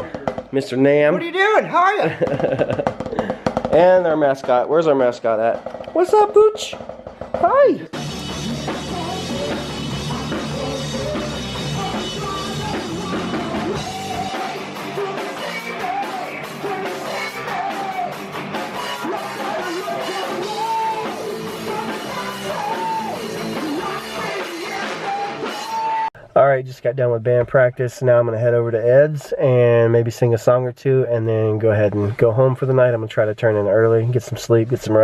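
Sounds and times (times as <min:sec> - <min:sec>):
rock band playing: 0:05.4 - 0:26.1
person singing: 0:07.6 - 0:26.2.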